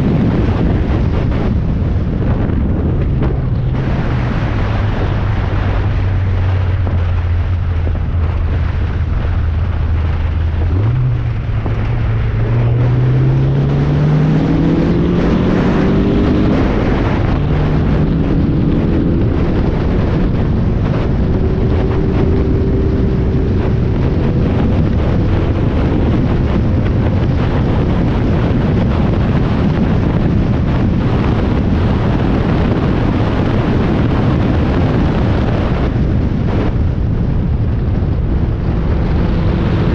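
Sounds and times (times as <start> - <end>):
wind and road noise: 0.0 - 39.9
race car engine revving: 2.2 - 28.6, 38.2 - 39.9.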